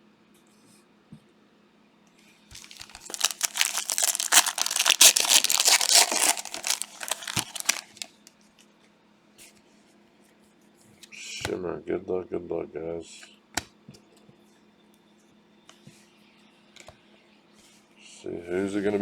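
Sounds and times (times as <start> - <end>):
plastic wrapper tearing and crinkling: 2.6 - 8.3.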